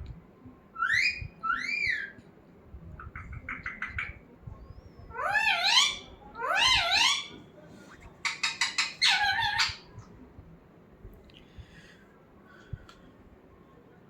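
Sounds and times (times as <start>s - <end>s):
parrot calling: 0.8s - 2.1s, 5.1s - 7.4s, 8.2s - 9.9s.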